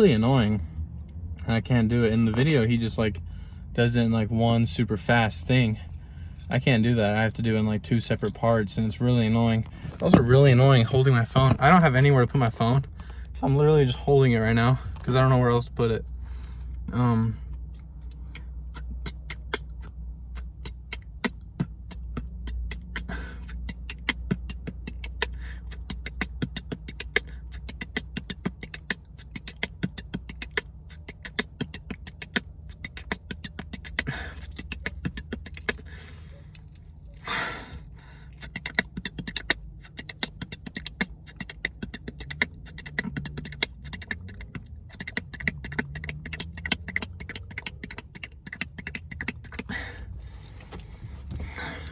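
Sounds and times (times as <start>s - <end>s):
steady low hum: 0.0s - 51.9s
person beatboxing: 18.7s - 35.6s, 38.4s - 49.7s.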